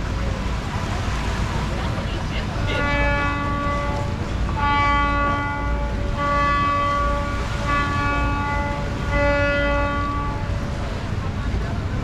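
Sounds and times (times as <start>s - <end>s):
horn blasts: 2.6s - 10.8s.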